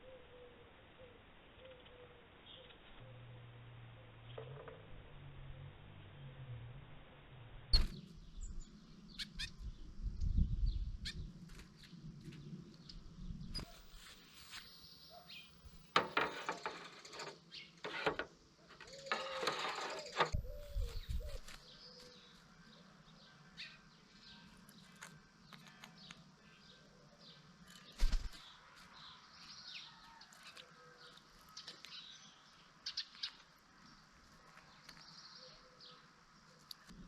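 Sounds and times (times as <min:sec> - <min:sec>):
small birds chirping: 0:07.7 - 0:15.9, 0:20.0 - 0:37.0
wings flapping or rustling: 0:20.0 - 0:22.1, 0:27.7 - 0:28.5.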